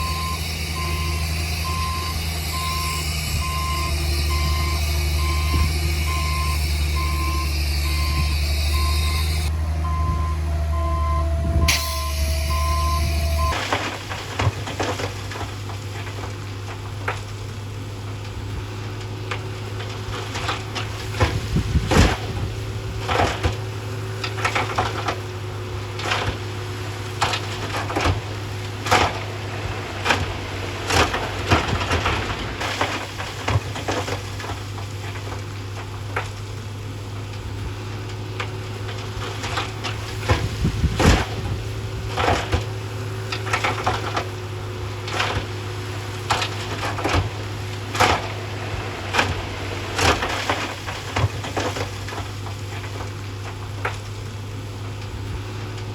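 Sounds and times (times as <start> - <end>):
earthmoving machine diesel engine: 0.0 - 55.9
rocks knocking and tumbling: 12.7 - 55.9.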